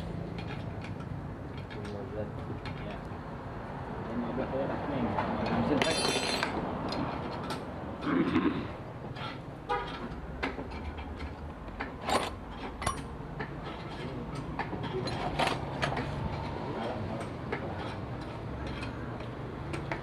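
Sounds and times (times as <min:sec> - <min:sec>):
metallic tool clicks and knocks: 0:10.4 - 0:16.1.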